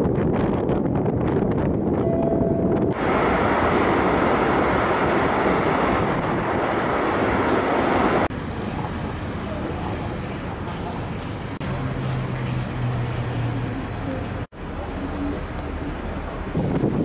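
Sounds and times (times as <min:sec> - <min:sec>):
wind buffeting microphone: 0:00.0 - 0:11.6, 0:15.3 - 0:17.0
boat engine running: 0:02.0 - 0:17.0.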